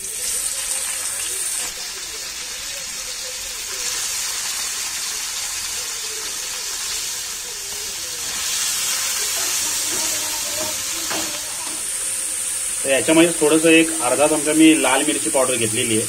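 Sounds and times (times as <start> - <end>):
cheese sizzling in hot oil: 0.0 - 16.0
spatula stirring in pan: 3.1 - 14.5.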